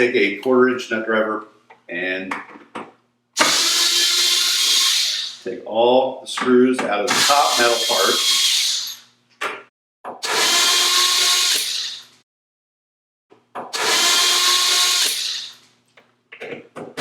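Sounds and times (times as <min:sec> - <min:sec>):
power drill spinning: 0:03.4 - 0:05.5, 0:07.1 - 0:09.1, 0:10.2 - 0:12.2, 0:13.7 - 0:15.6.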